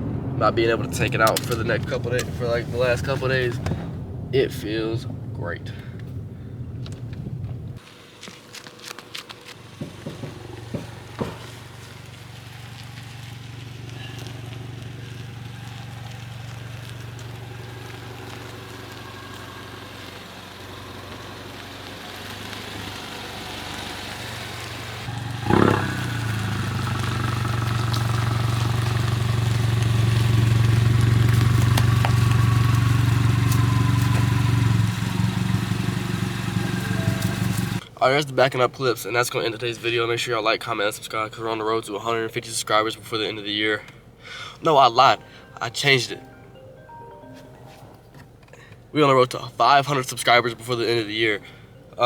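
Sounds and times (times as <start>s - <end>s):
car engine running at low speed: 0.0s - 38.0s.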